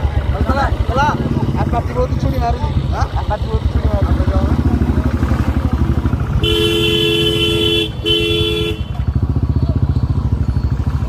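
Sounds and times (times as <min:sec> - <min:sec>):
motorcycle engine throbbing: 0:00.0 - 0:11.0
two-tone vehicle horn: 0:06.3 - 0:09.2.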